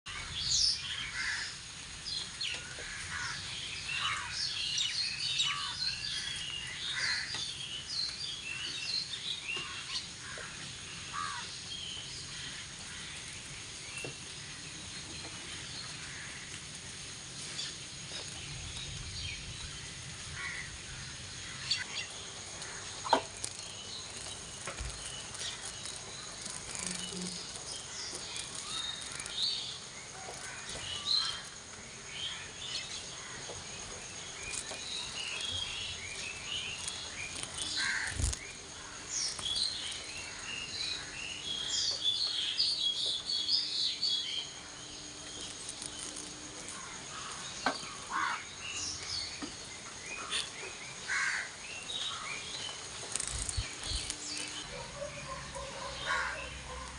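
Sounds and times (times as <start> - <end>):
birds chirping: 17.0 - 56.9.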